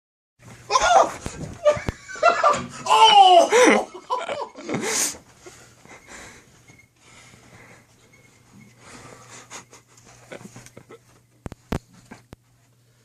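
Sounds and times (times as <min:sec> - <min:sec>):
person laughing: 0:01.6 - 0:05.2, 0:09.3 - 0:11.2
wheezing breaths: 0:04.6 - 0:10.3
faint rustling: 0:05.1 - 0:13.0.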